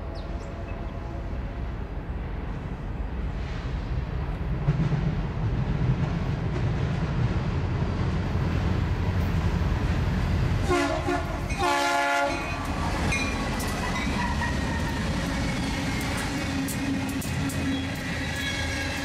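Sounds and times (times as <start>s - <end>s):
freight train rumbling past: 0.0s - 19.0s
train air horn: 10.6s - 12.7s
train wheels clicking: 11.3s - 19.0s.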